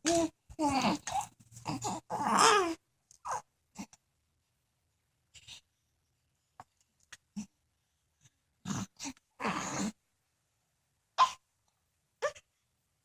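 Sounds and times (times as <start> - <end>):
baby grunting: 0.1 - 3.9, 8.7 - 10.0.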